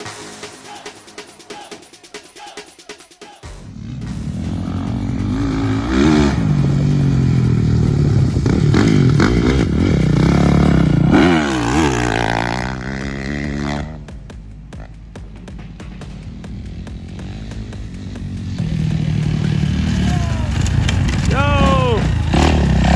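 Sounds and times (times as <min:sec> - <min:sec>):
motocross bike engines revving: 0:03.5 - 0:14.2, 0:15.6 - 0:22.9.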